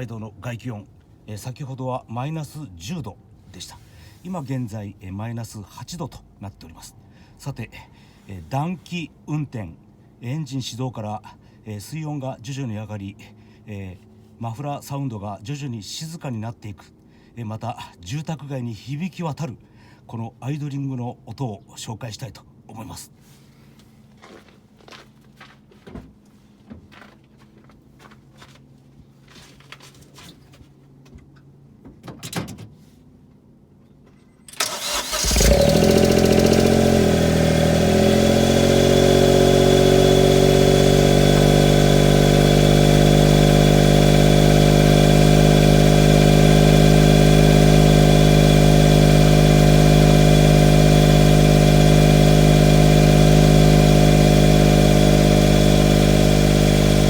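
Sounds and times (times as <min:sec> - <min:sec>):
car engine starting and idling: 0:34.5 - 0:57.0.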